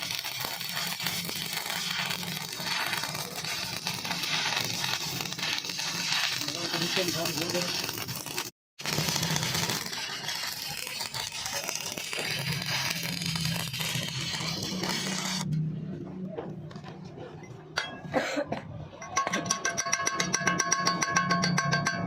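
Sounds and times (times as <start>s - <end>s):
welding arc crackling: 0.0s - 15.6s.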